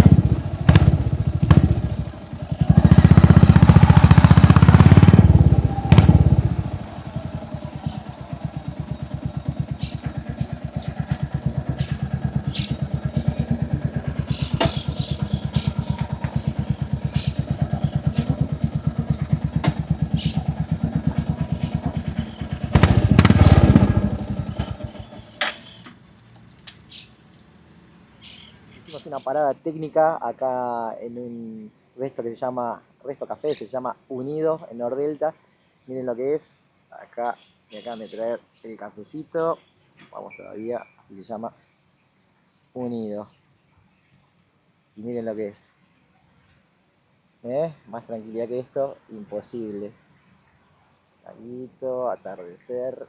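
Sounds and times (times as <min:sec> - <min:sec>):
motorcycle engine revving and idling: 0:00.0 - 0:25.8.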